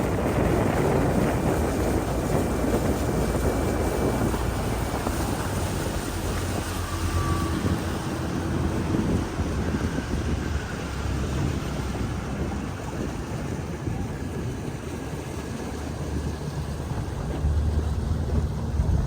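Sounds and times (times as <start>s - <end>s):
water rushing past hull: 0.0s - 19.0s
wind buffeting microphone: 0.0s - 19.0s.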